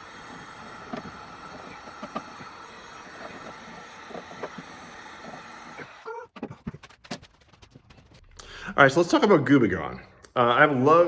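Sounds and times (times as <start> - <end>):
steady hum: 0.0 - 6.0.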